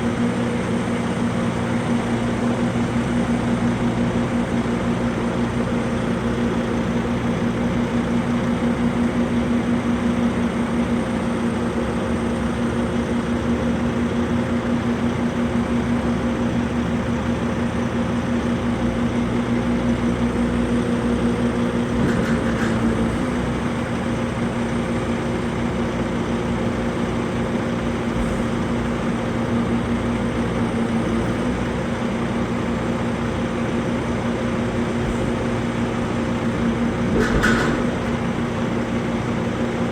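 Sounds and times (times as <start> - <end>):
vehicle engine humming: 14.6 - 39.9.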